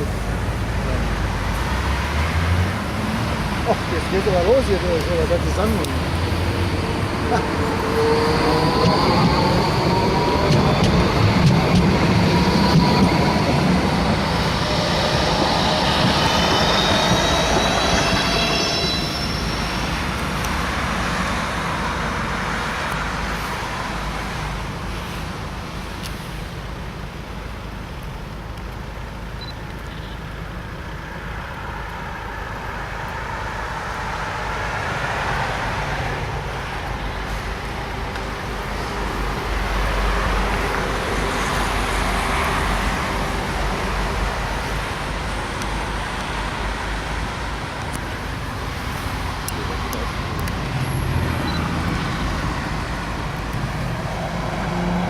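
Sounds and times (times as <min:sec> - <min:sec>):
road traffic: 0:00.0 - 0:55.0
tram running on tracks: 0:00.0 - 0:55.0
tram wheels squealing: 0:03.6 - 0:21.7.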